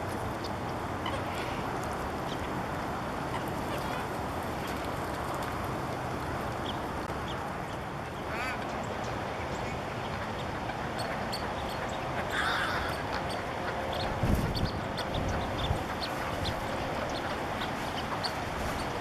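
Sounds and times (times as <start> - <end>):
bird calling: 8.2 - 19.0
wind rushing over microphone: 14.0 - 19.0.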